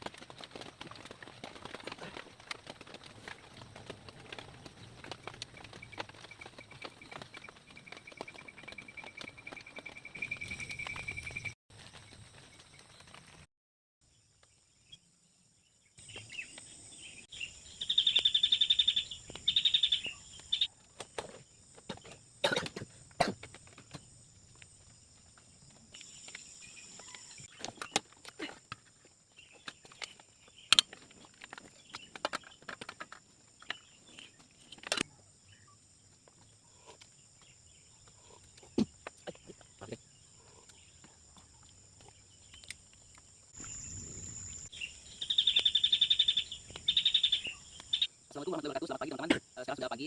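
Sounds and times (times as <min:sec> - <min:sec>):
insects droning: 0:14.1 - 0:50.0
rapid pulsed chirping call: 0:17.4 - 0:20.7, 0:43.6 - 0:48.5.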